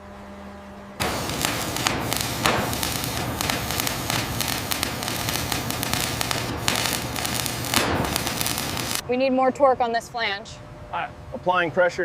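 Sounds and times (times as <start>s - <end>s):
steady low hum: 0.0s - 9.2s
dense crackling and hissing: 1.0s - 9.0s.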